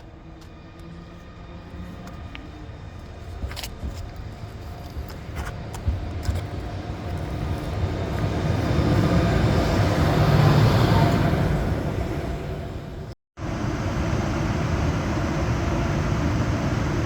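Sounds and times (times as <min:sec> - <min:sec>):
train wheels rumbling on rails: 0:00.0 - 0:13.1.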